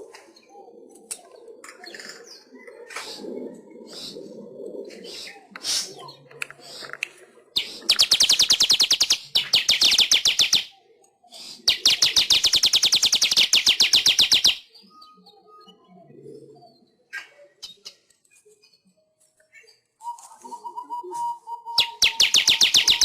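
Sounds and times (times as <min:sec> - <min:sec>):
weaver bird chattering trill: 0:07.6 - 0:10.7, 0:11.7 - 0:14.7, 0:21.7 - 0:23.0.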